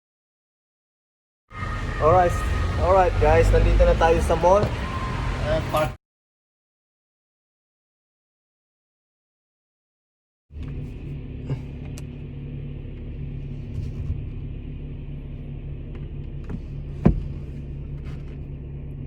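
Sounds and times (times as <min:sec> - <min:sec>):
car engine rumble inside cabin: 0:10.5 - 0:19.0.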